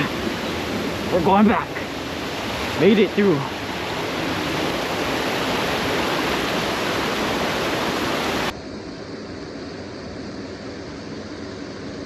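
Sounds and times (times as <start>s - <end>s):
waterfall and stream rushing: 0.0s - 8.6s.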